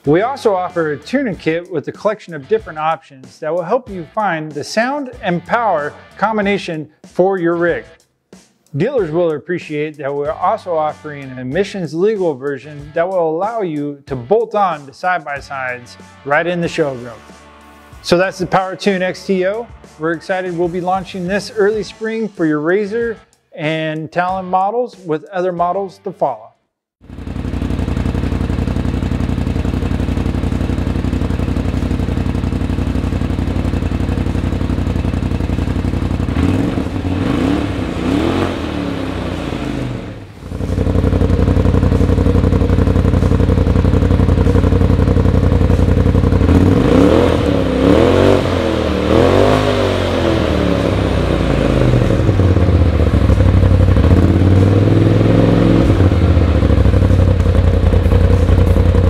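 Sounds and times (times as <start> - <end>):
engine idling and revving: 27.0 - 59.0.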